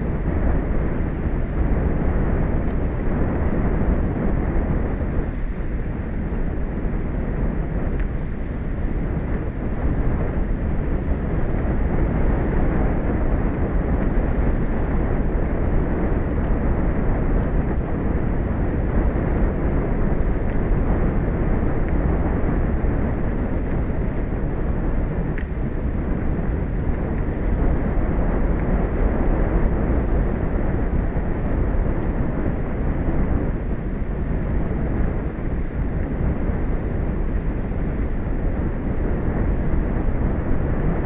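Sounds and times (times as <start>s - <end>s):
wind: 0.0s - 41.0s.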